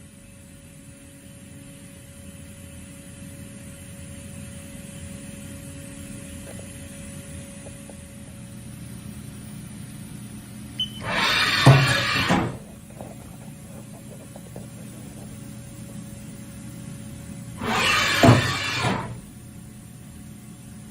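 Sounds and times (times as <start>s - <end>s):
machine hum: 10.8s - 20.4s
loud hissing burst: 11.0s - 13.7s, 17.6s - 19.4s.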